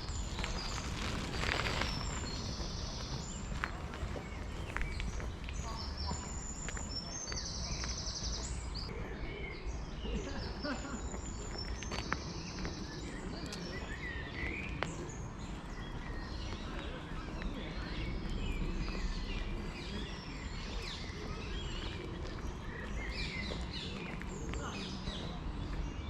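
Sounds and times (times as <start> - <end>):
wind rumble on microphone: 0.0 - 7.0
small birds chirping: 0.0 - 26.0.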